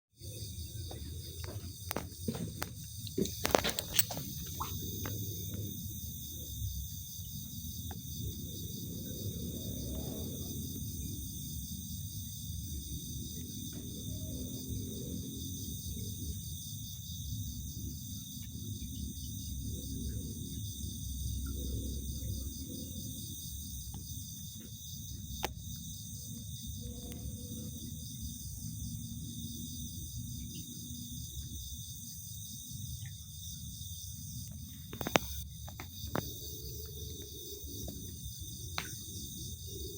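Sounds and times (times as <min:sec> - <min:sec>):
insects chirring: 0:00.1 - 0:39.9.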